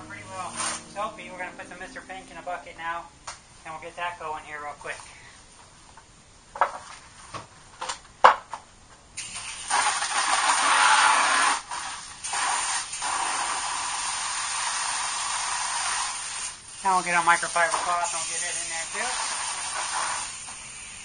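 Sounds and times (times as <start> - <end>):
hose spraying water into bucket: 0.0 - 1.1, 9.2 - 21.0.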